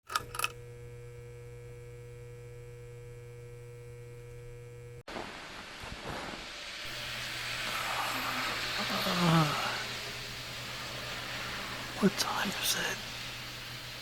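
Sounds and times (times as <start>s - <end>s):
electrical hum: 0.1s - 14.0s
rain hiss: 5.1s - 14.0s.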